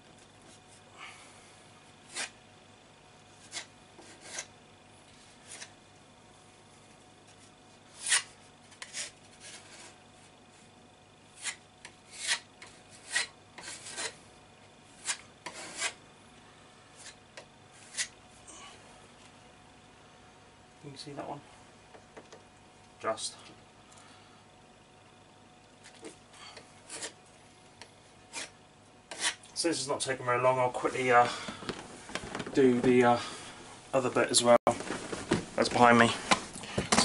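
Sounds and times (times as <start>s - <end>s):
filler knife scraping wall: 11.4s - 14.2s, 15.0s - 16.0s, 17.0s - 18.2s, 25.9s - 27.2s, 28.3s - 29.4s.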